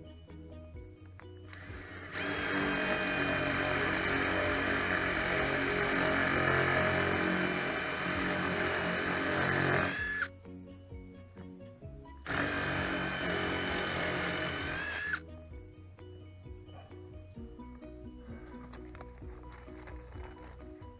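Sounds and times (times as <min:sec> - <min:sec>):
power tool motor whining: 0:01.5 - 0:10.3, 0:12.3 - 0:15.2.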